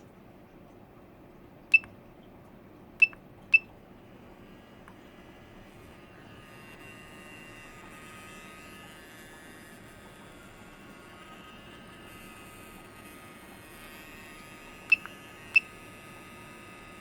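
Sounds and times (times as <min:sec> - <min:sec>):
cooling fan whine and hiss: 0:00.0 - 0:17.0
short electronic beeps: 0:03.0 - 0:03.7.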